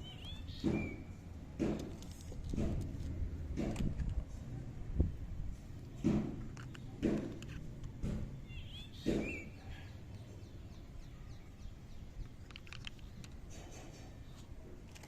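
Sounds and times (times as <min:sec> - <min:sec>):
bird chirping: 0:00.0 - 0:01.2, 0:08.3 - 0:14.5
dull knocks of toy tools: 0:01.6 - 0:04.2, 0:05.9 - 0:08.3.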